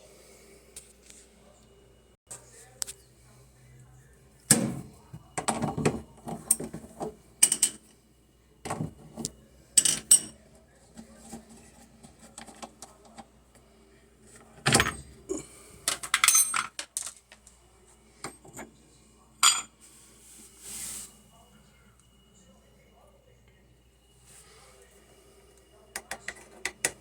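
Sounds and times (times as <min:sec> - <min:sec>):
metal objects clinking: 0:15.9 - 0:17.2.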